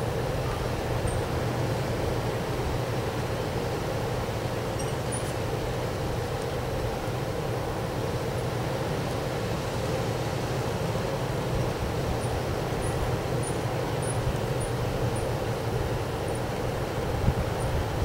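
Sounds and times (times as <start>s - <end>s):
wind buffeting microphone: 16.9s - 18.0s.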